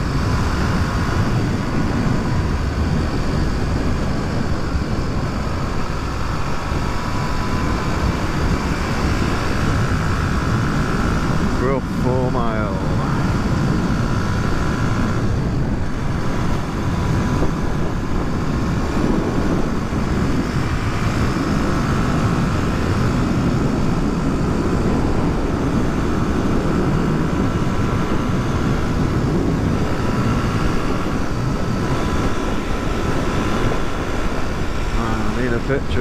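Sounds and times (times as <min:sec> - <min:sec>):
motorcycle engine running: 0:00.0 - 0:36.0
wind rushing over microphone: 0:00.0 - 0:36.0.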